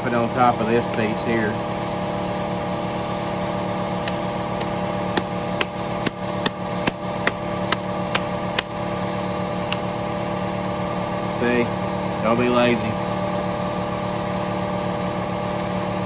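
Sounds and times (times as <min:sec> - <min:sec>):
electric sander running: 0:00.6 - 0:11.2.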